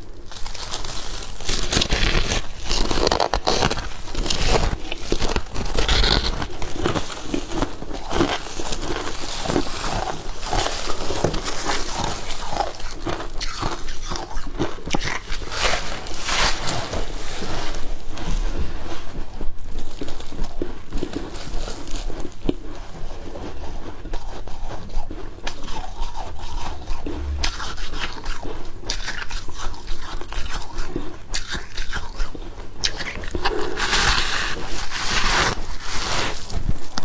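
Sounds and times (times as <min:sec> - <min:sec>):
ice crunching between teeth: 0:00.3 - 0:16.8.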